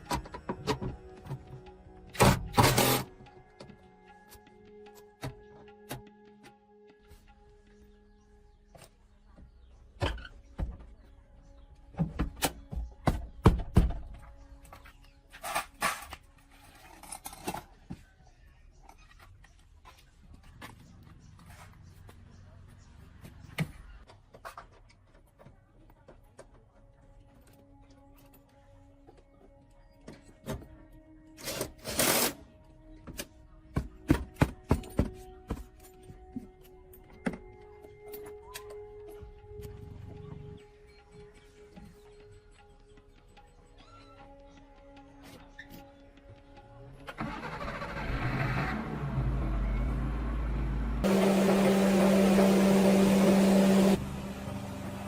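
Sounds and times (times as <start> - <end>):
faint music: 0.0 - 55.0.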